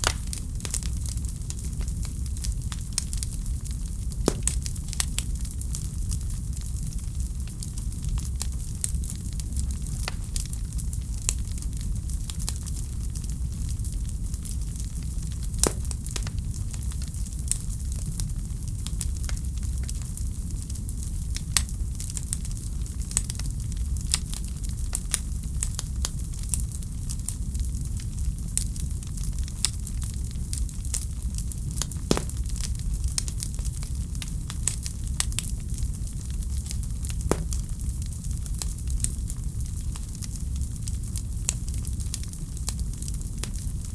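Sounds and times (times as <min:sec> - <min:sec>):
wood fire crackling: 0:00.0 - 0:17.9, 0:30.0 - 0:40.4
low rumble and hiss of fire: 0:00.0 - 0:43.9.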